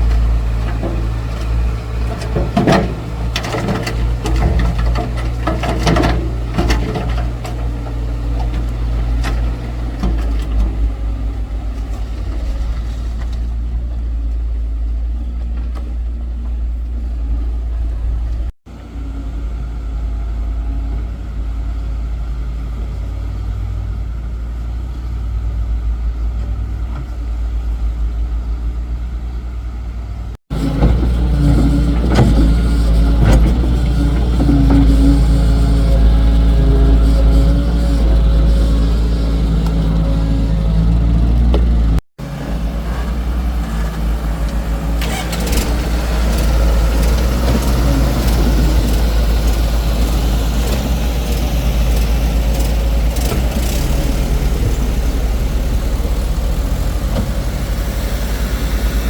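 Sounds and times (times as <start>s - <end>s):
machine knocks and clanks: 0.0s - 10.8s
diesel engine running: 0.0s - 59.0s.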